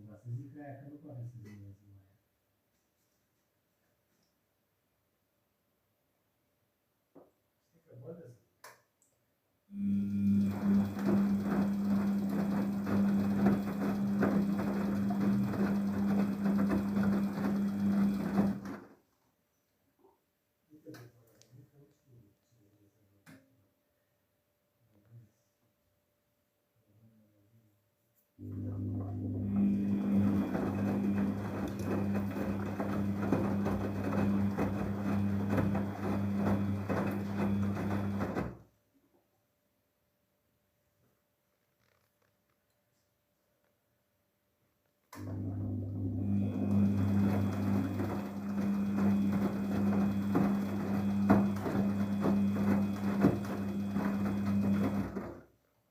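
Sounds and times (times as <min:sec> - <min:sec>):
washing machine motor hum: 0:09.7 - 0:18.9, 0:28.4 - 0:38.6, 0:45.2 - 0:55.5
washing machine rattle: 0:10.4 - 0:18.8, 0:29.5 - 0:38.6, 0:46.3 - 0:55.4.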